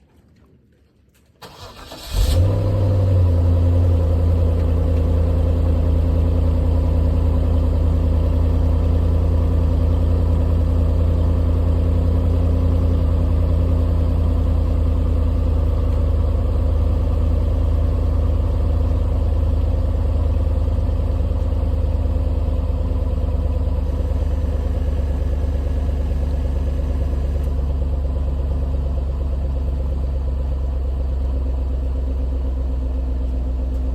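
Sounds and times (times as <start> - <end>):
starter motor cranking: 1.4 - 2.5
car engine idling: 1.4 - 33.9.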